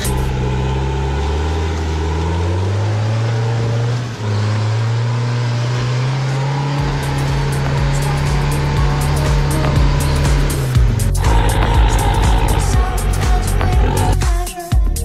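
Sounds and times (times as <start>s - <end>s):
engine revving under load: 0.0s - 14.4s.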